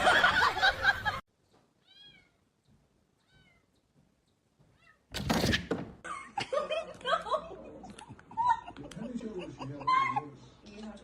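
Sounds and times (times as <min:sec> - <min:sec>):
cat meowing softly: 0:01.8 - 0:02.5, 0:03.2 - 0:03.8, 0:04.6 - 0:05.1.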